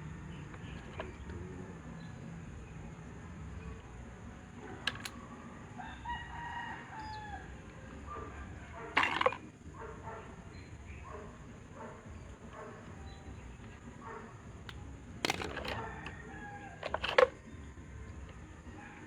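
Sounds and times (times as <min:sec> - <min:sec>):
sharp clicks: 0:04.6 - 0:05.4
rooster crowing: 0:05.5 - 0:08.9, 0:15.5 - 0:17.4.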